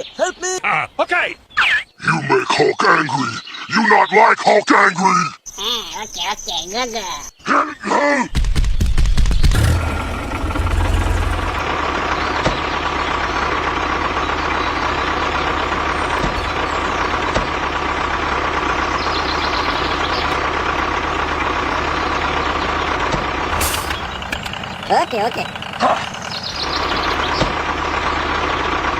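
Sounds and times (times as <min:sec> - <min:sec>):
tractor engine idling: 0:09.5 - 0:28.9.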